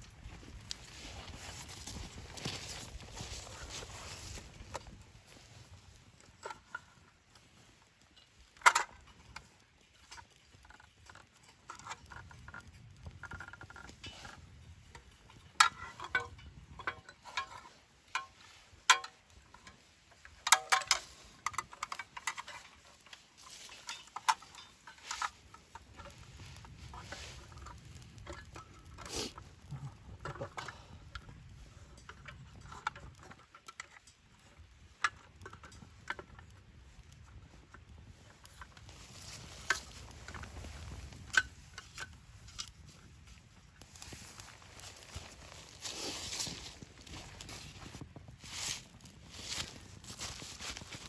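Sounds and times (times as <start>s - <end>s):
camp gear knocking and clattering: 0.0s - 7.5s, 8.1s - 51.0s.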